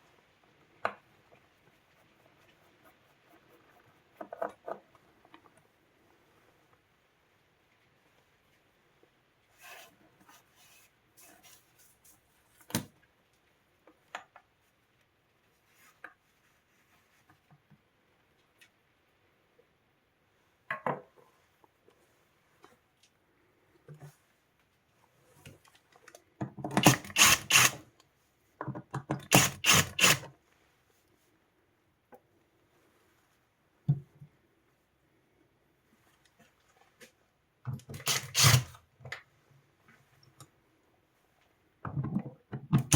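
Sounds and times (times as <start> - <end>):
hard parts clicking and knocking: 26.4 - 27.8, 28.6 - 30.3, 41.9 - 42.9.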